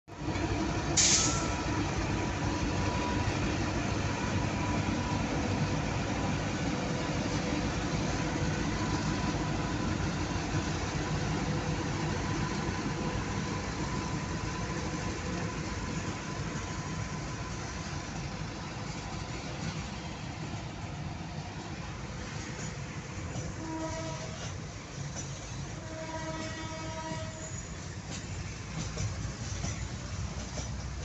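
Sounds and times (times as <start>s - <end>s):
freight train rumble: 0.1s - 31.0s
brief hiss: 0.9s - 1.6s.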